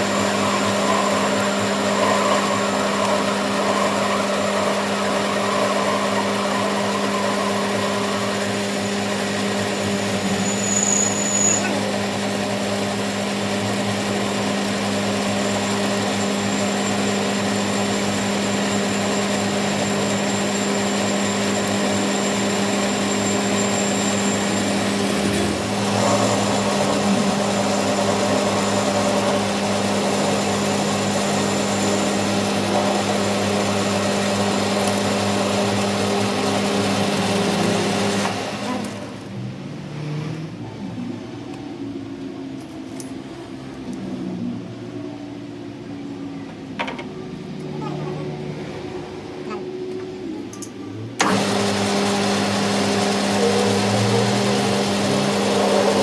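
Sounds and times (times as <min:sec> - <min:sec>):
workshop machine humming: 0:00.0 - 0:42.6, 0:43.2 - 0:56.0.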